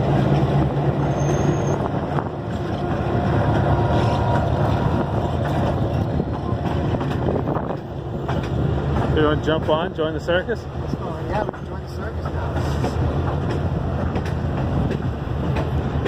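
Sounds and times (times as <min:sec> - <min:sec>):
train wheels rumbling on rails: 0:00.0 - 0:16.0
wind on microphone: 0:01.7 - 0:08.8.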